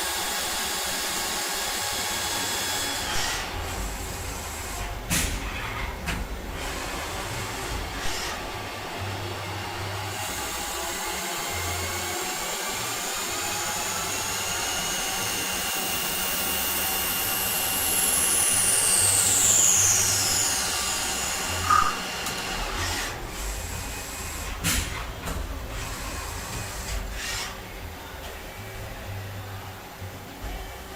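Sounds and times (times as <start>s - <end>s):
lathe machining whine: 0.0s - 24.7s
sharp squeak: 21.6s - 22.0s.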